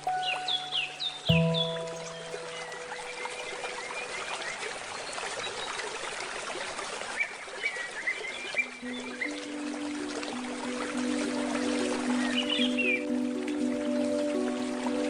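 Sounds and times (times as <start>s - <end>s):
handpan note ringing: 0.0s - 5.1s, 8.8s - 15.0s
bird chirps: 0.0s - 5.9s, 10.7s - 13.2s
stream trickling: 0.0s - 15.0s.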